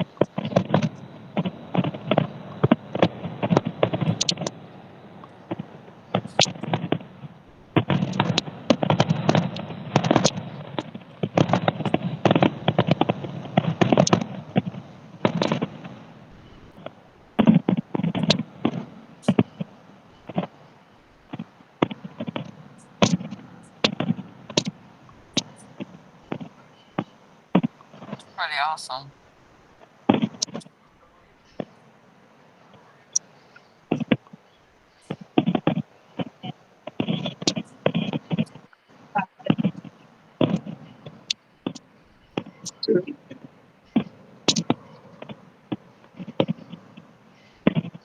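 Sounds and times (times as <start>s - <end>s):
fireworks popping and crackling: 0.0s - 20.7s, 21.3s - 28.7s, 29.8s - 30.8s, 33.9s - 34.4s, 35.0s - 48.0s.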